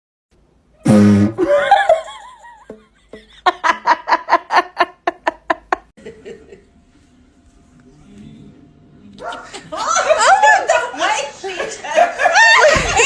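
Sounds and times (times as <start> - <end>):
loud buzzy blast: 0.8 - 1.5
laughter: 1.4 - 6.7, 9.2 - 13.0.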